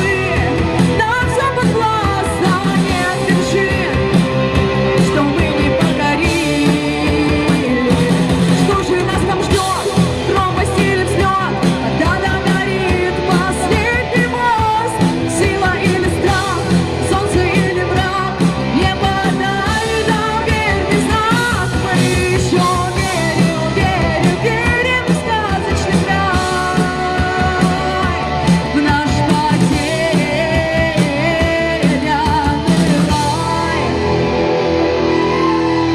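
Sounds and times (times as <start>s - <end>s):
person singing: 0.0s - 35.9s
rock band playing: 0.0s - 35.9s.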